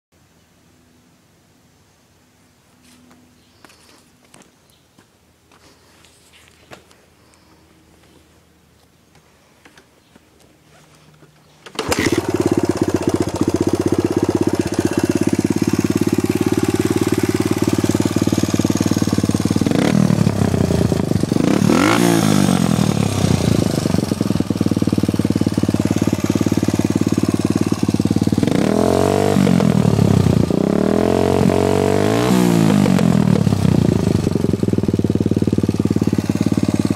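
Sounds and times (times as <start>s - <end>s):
dirt bike engine revving: 11.7s - 36.9s.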